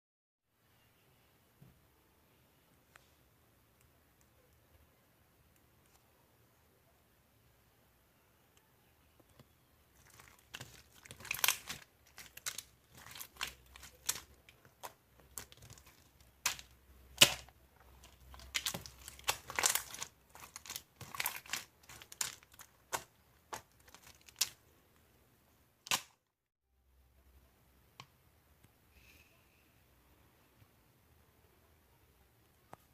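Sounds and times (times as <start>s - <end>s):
plastic packaging crinkling: 10.0s - 24.6s.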